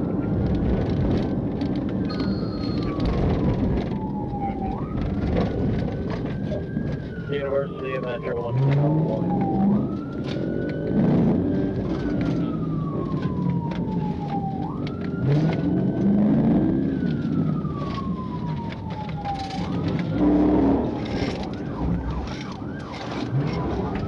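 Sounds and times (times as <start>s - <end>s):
police siren wailing: 0.0s - 24.0s
vehicle engine revving: 20.0s - 21.5s.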